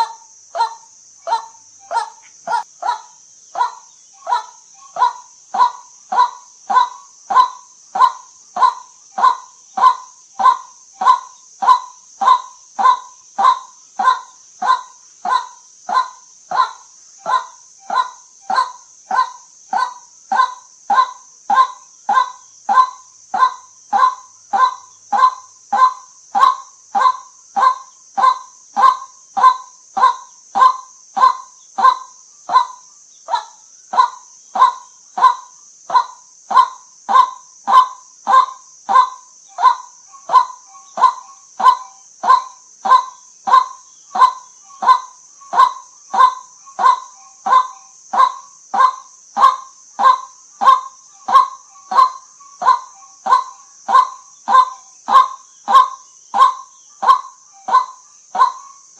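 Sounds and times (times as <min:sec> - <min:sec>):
steady high hiss: 0:00.0 - 0:58.9
waterhen repeating call note: 0:37.2 - 0:58.8.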